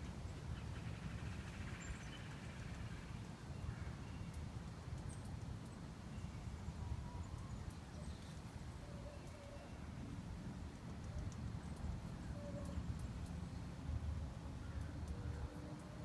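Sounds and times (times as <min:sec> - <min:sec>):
faint songbird chirps: 0:00.4 - 0:10.2.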